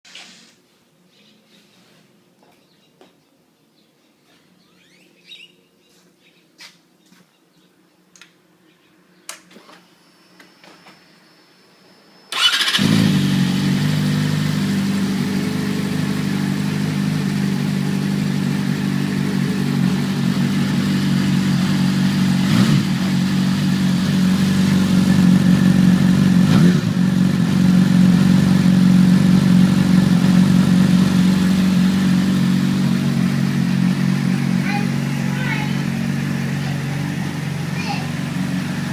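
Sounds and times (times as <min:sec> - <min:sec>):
motorcycle engine starting and idling: 0:12.3 - 0:38.9.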